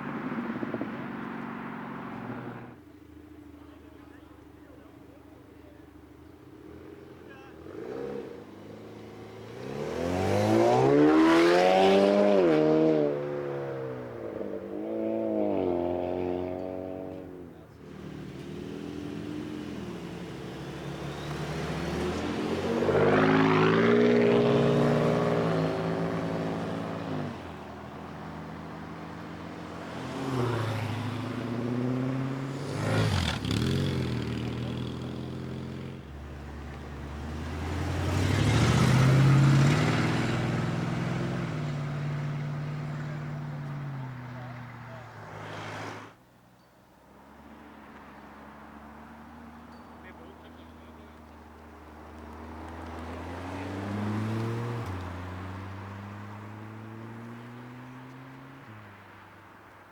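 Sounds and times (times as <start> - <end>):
car engines revving away: 0.0 - 46.2, 47.1 - 59.9.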